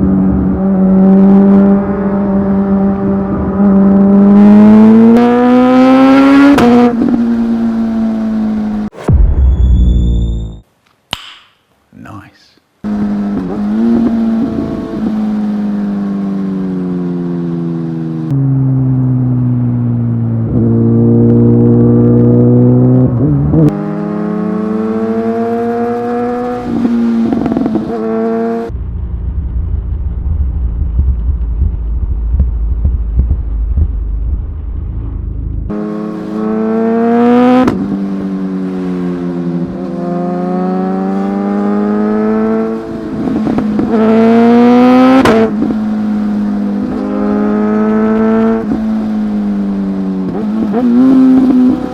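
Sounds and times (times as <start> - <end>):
motorcycle engine accelerating: 0.0 - 10.6, 12.8 - 51.9
low steady rumble: 28.7 - 35.8.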